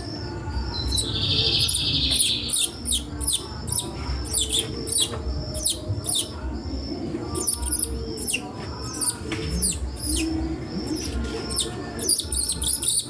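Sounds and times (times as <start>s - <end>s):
small songbird singing: 0.0s - 13.0s.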